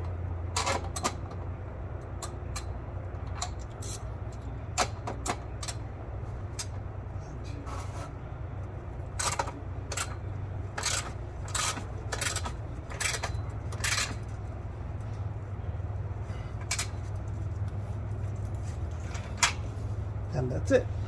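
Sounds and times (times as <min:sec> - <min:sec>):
steady low hum: 0:00.0 - 0:21.0
ratchet wrench clicking: 0:10.8 - 0:14.4.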